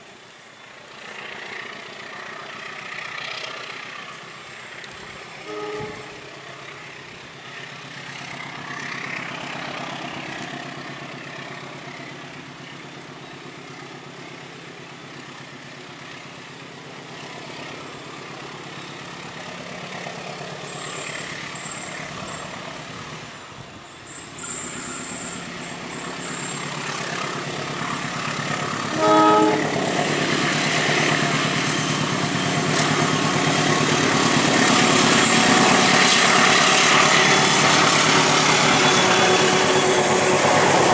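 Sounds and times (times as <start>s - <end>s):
locomotive engine and wheels: 0.0s - 40.9s
train horn blast: 5.4s - 6.6s, 28.9s - 30.4s.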